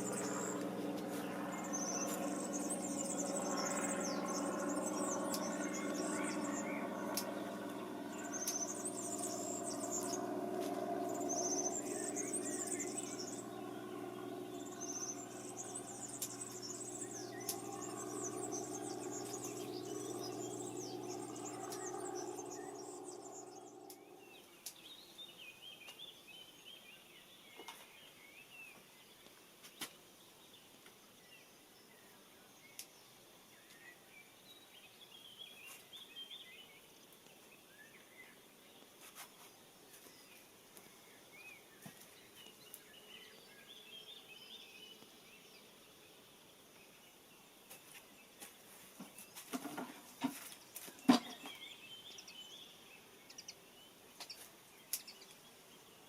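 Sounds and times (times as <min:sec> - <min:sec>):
low mechanical hum: 0:00.0 - 0:24.4
small birds chirping: 0:00.0 - 0:31.0, 0:32.7 - 0:56.0.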